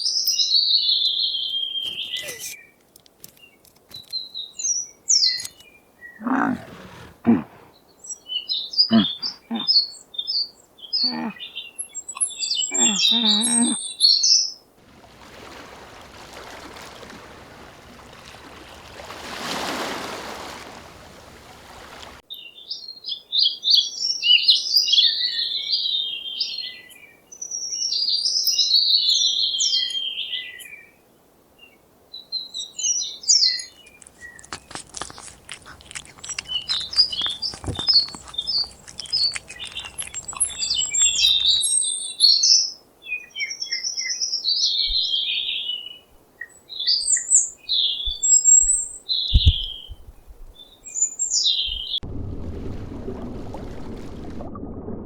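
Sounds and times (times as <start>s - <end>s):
small birds chirping: 0.0s - 14.5s, 32.4s - 42.6s, 46.7s - 52.0s
crackling hiss: 33.8s - 41.8s.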